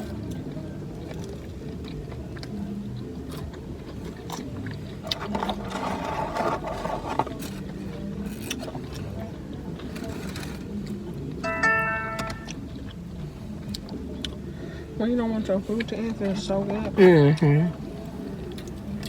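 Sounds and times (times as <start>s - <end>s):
chewing clicks: 0.0s - 5.6s
rustling and crinkling: 5.1s - 8.8s.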